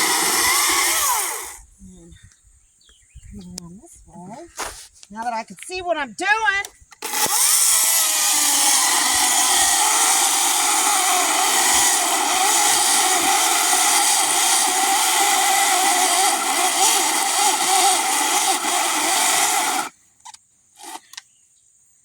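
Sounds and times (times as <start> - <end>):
chainsaw cutting log: 0.0 - 1.6, 7.0 - 20.0, 20.8 - 21.2.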